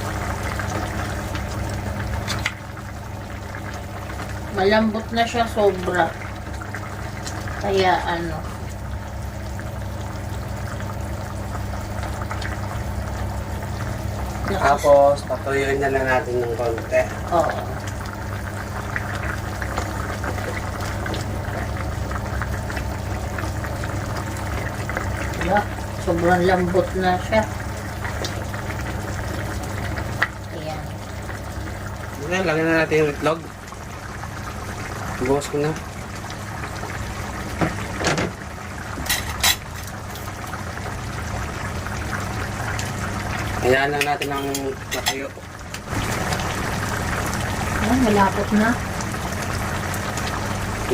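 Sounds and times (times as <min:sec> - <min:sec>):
sauce bubbling in a pot: 0:00.0 - 0:50.9.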